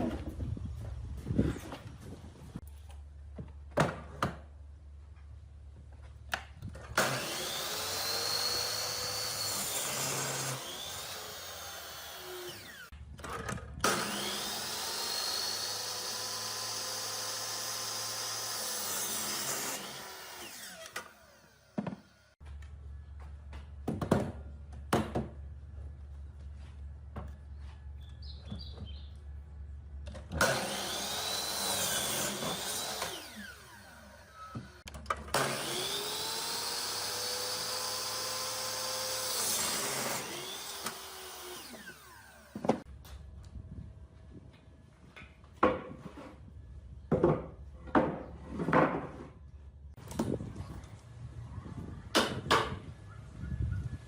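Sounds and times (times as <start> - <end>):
electric power tool motor: 7.0 - 12.9, 13.8 - 22.4, 30.4 - 42.8.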